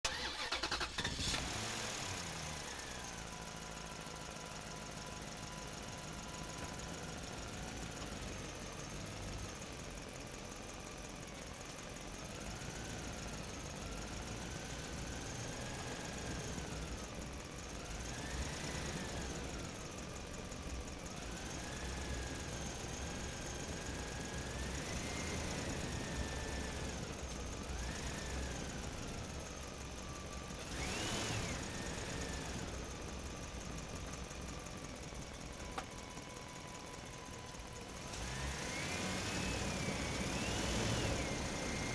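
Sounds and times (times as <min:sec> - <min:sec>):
small motor whining: 0:30.6 - 0:32.9.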